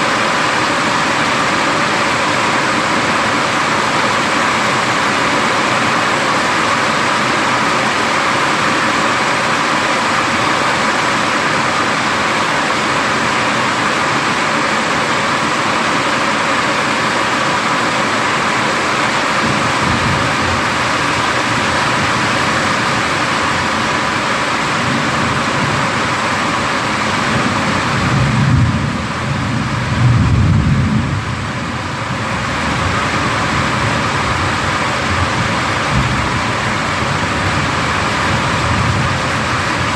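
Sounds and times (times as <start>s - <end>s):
heavy rain falling: 0.0s - 39.9s
low rolling thunder: 19.4s - 23.1s, 27.2s - 39.9s.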